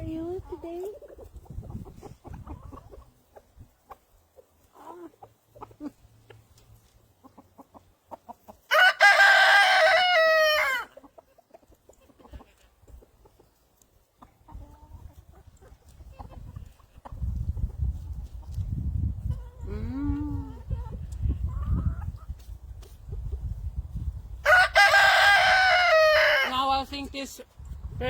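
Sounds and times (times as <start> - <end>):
rooster crowing: 8.7 - 10.9, 24.5 - 26.4.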